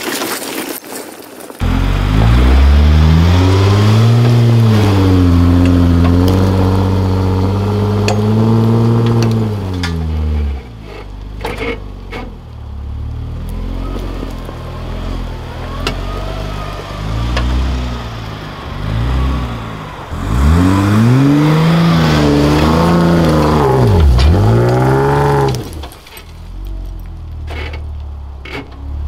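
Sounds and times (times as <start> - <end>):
engine revving: 1.6 - 26.2.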